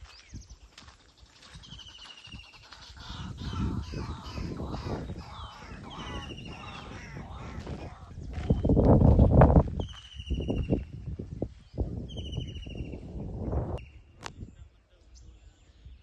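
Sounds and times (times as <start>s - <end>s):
birds calling and chirping: 0.0s - 16.0s
high bird trill: 1.6s - 8.8s.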